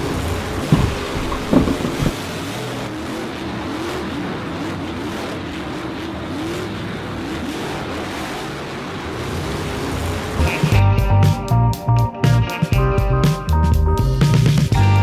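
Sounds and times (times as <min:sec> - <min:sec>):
race car engines revving: 0:00.0 - 0:10.8
steady rushing noise: 0:00.0 - 0:13.5.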